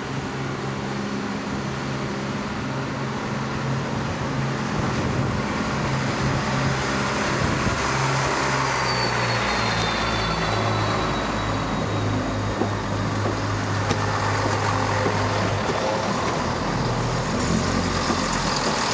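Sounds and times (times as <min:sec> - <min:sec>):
diesel train engine humming: 0:00.0 - 0:18.9
faint high squeal: 0:07.9 - 0:13.5.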